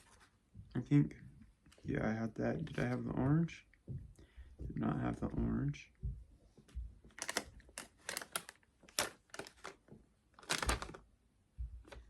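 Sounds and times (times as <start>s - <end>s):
plastic packet crinkling: 7.2s - 9.8s, 10.4s - 11.0s.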